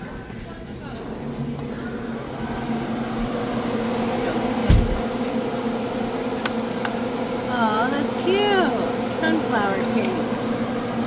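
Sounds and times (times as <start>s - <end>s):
indoor machinery hum: 0.0s - 11.0s
low thump: 4.7s - 5.0s.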